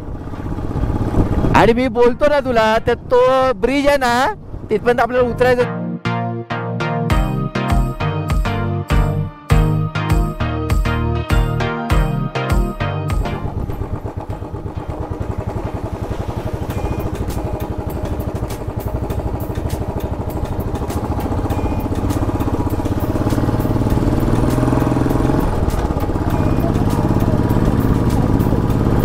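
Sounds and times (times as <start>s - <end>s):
motorcycle engine pulsing: 11.4s - 29.0s.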